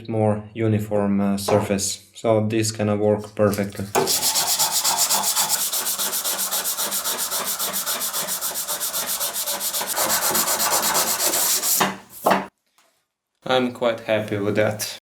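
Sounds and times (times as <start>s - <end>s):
sandpaper rubbing on metal blade: 4.0s - 11.9s.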